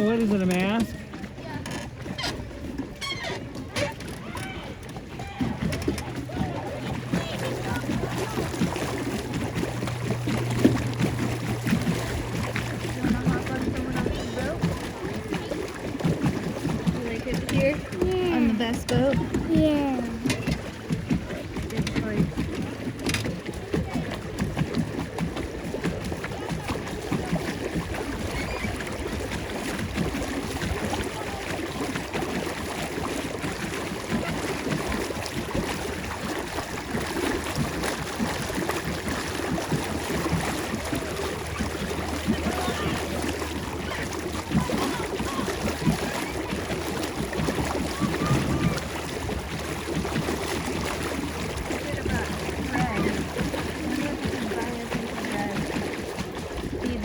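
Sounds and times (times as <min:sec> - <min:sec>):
water splashing and churning: 0:00.0 - 0:57.0
wind on microphone: 0:44.5 - 0:49.7.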